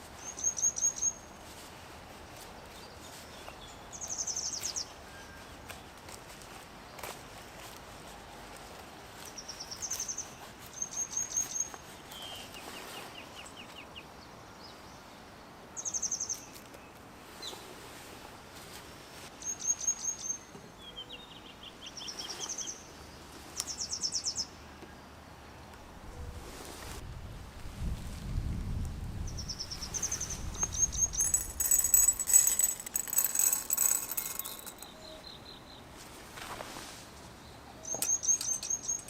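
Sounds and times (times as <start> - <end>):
faint outdoor background: 0.0 - 39.0
songbirds trilling: 37.8 - 39.0.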